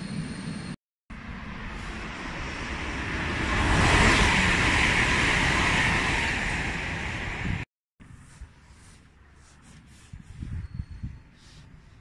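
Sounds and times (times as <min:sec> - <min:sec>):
train passing at speed: 0:00.1 - 0:07.7.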